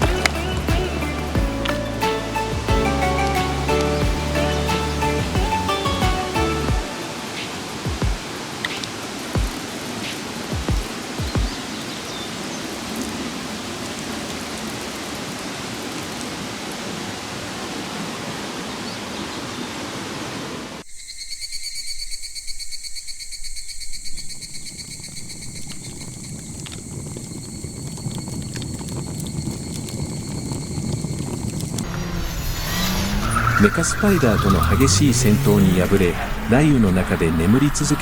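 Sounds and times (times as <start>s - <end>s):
outdoor hiss: 0.0s - 21.0s, 24.4s - 38.0s
insects trilling: 6.8s - 15.0s, 20.8s - 36.0s.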